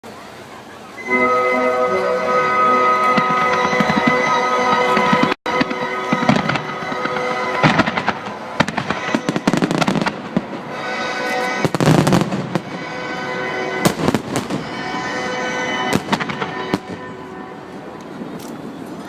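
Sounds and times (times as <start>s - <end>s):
music playing: 1.0s - 18.4s
fireworks bursting and crackling: 2.8s - 17.2s.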